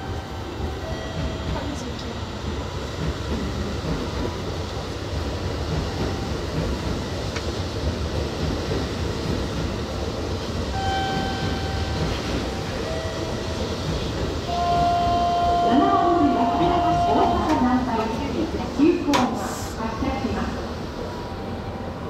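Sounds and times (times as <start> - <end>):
electric train whine: 0.0 - 22.0
train wheels rumbling on rails: 0.0 - 22.0.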